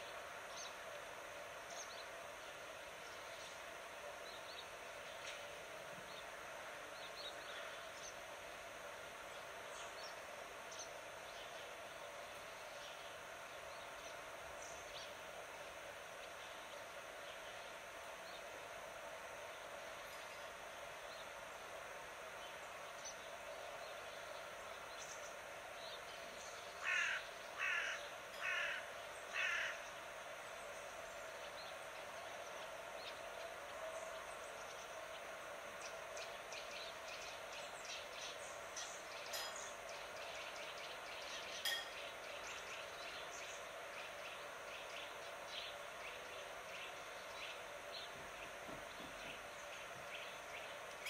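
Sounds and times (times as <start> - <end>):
outdoor ambience: 0.0 - 51.0
bird calling: 26.8 - 29.9
small birds chirping: 34.4 - 51.0.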